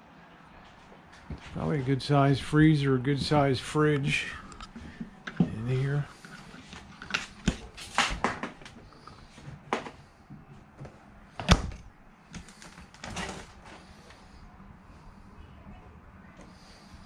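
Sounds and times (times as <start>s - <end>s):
cabinet doors and latches clicking: 11.4s - 13.5s.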